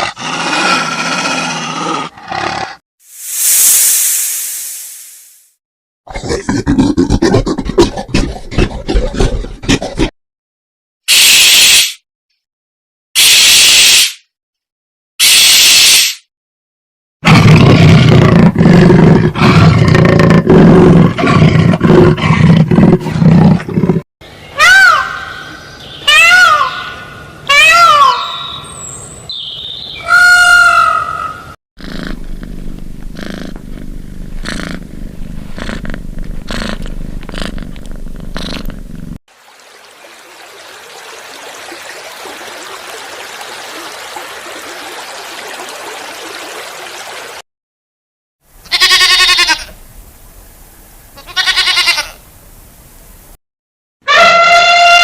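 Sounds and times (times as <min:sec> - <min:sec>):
pitched animal call: 0:48.6 - 0:49.7, 0:54.0 - 0:55.0
short bleating calls: 0:48.6 - 0:49.7, 0:51.2 - 0:52.2.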